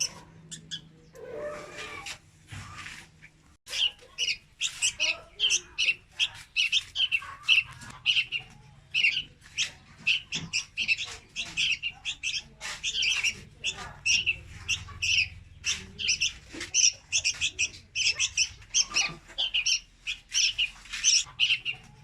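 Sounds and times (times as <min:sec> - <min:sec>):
bird giving sharp high calls: 0:03.7 - 0:21.8.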